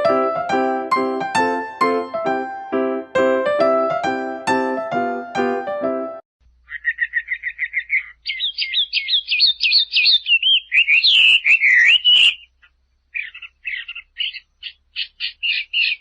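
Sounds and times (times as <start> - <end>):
small bird chirping: 6.4 - 16.0.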